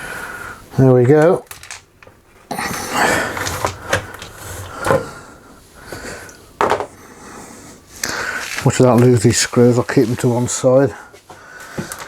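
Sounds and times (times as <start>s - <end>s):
plastic casing scraping and clattering: 2.6s - 5.2s.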